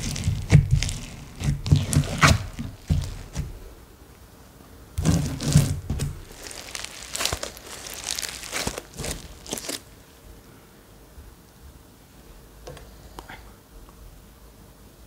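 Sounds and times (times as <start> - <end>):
slime crackling and popping: 0.0 - 3.6, 5.0 - 9.9.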